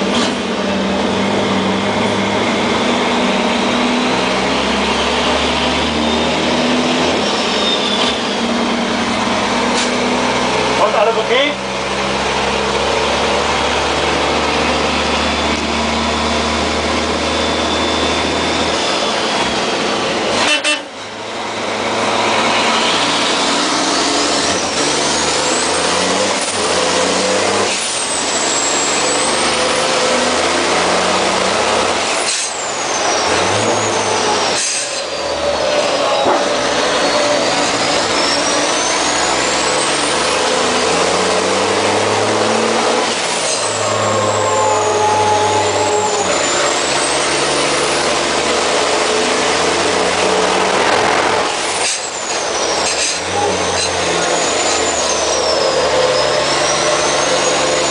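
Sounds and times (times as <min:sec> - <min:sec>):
truck diesel engine pulling hard: 0:00.0 - 0:57.9
high turbo whistle: 0:43.4 - 0:48.0.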